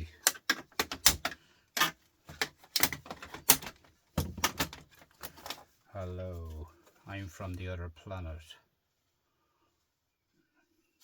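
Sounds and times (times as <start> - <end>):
small parts clicking and knocking: 0.0 - 5.7.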